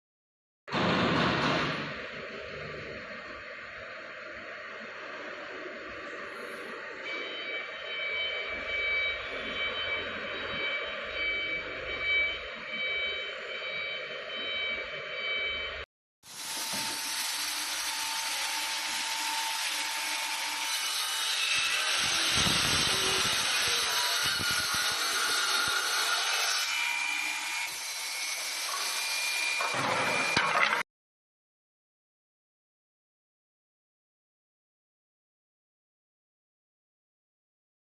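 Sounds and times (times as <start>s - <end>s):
hissy cutting of wood: 16.2s - 26.5s
woodworking machine whine: 16.3s - 30.8s.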